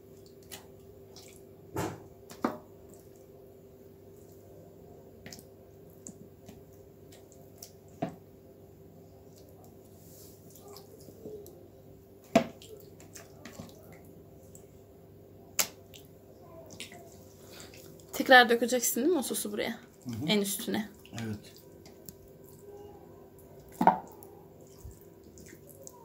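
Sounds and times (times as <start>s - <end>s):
wet squishes of marinating meat: 0.0s - 3.3s, 4.0s - 8.4s, 9.0s - 18.2s, 19.8s - 26.0s
faint steady hum: 0.0s - 26.0s.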